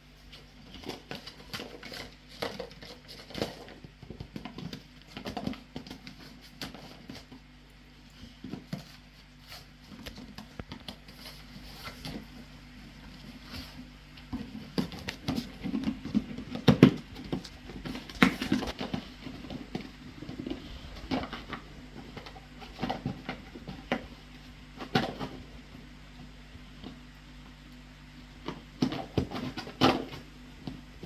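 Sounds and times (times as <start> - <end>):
steady low hum: 0.0 - 31.0
dog nose and paws tapping: 8.0 - 12.4, 13.0 - 27.6, 28.4 - 30.9.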